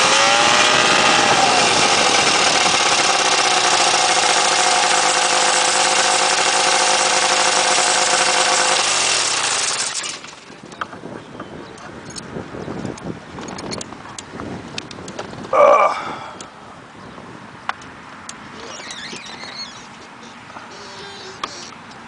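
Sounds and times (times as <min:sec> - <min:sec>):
small two-stroke engine winding down: 0:00.0 - 0:10.6, 0:20.7 - 0:21.7
faint wind rustle: 0:09.9 - 0:22.0.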